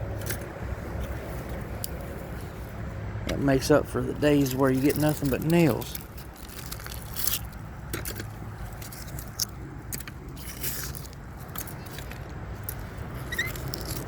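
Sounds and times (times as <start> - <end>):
scrap metal clicking and scraping: 4.4 - 14.0.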